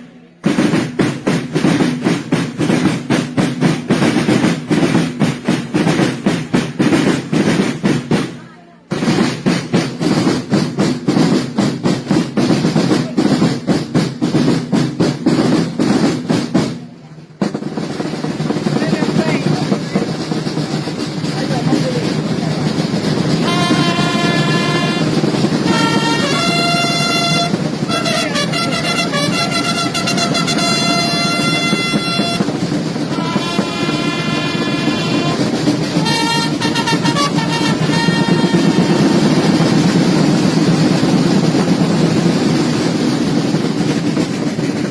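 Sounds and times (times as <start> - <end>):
marching snare and bass drums: 0.0 - 44.9
trumpets long held notes: 23.3 - 39.6.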